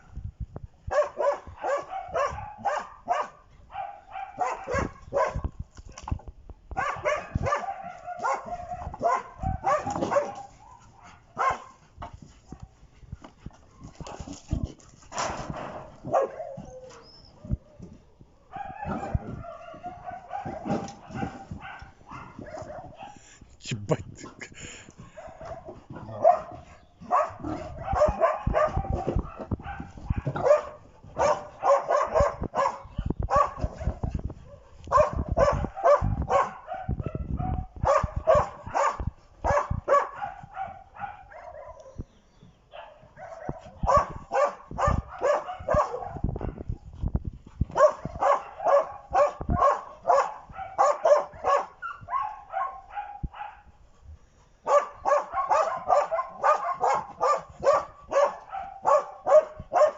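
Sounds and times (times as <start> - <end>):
dog barking: 0.9 - 5.5, 6.8 - 11.8, 16.0 - 16.8, 18.5 - 23.3, 25.0 - 42.0, 42.7 - 46.7, 47.7 - 53.7, 54.6 - 59.9
dog drawn-out cries: 16.0 - 17.8, 18.4 - 23.3, 25.2 - 42.0, 54.7 - 59.9.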